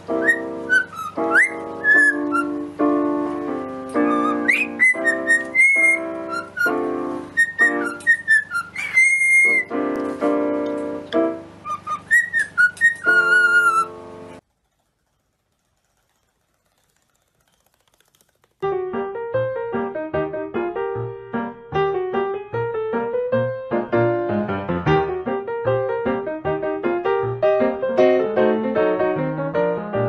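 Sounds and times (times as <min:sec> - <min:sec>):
piano melody: 0:00.0 - 0:14.4, 0:18.6 - 0:30.0
cockatiel whistling: 0:00.1 - 0:02.7, 0:03.9 - 0:09.8, 0:11.6 - 0:14.0.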